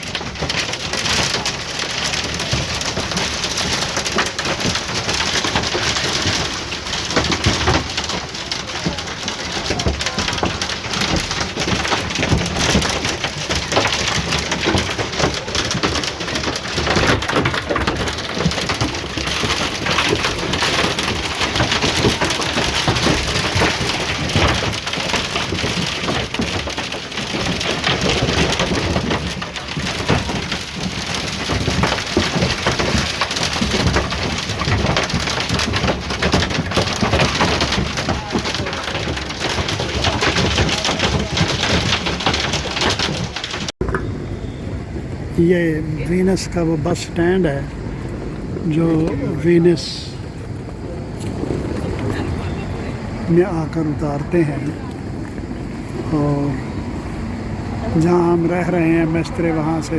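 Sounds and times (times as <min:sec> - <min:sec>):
hail and rain pelting: 0:00.0 - 0:59.9
wind gusting: 0:40.2 - 0:59.9.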